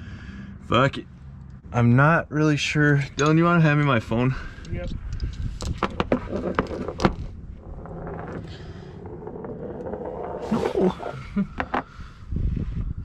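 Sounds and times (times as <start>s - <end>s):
handling noise on camera microphone: 5.2s - 12.0s.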